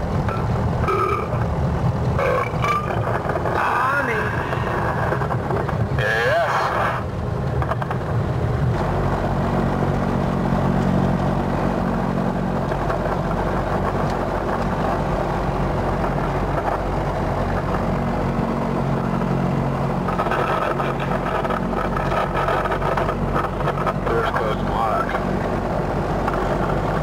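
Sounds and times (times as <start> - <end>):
aircraft engine droning in cabin: 0.0 - 27.0.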